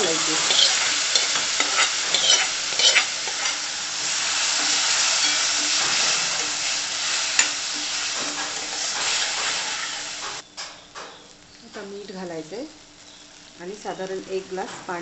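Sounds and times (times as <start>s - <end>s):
spoon scraping a pan: 0.0s - 10.4s
lentils sizzling in hot oil: 0.0s - 15.0s.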